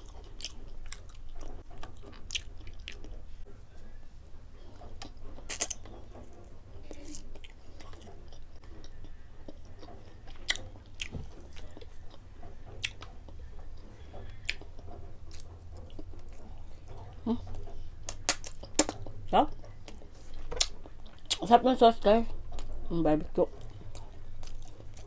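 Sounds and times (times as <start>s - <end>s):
chewing and biting meat: 0.0s - 3.4s, 6.8s - 21.5s, 23.5s - 25.0s
steady low hum: 0.0s - 25.0s.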